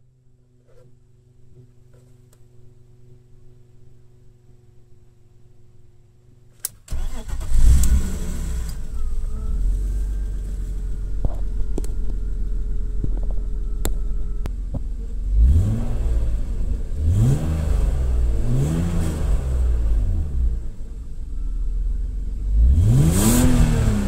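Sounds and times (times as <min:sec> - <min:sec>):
car engine starting and idling: 0:06.6 - 0:24.0
engine revving: 0:06.9 - 0:12.8, 0:15.1 - 0:20.9, 0:22.2 - 0:24.0.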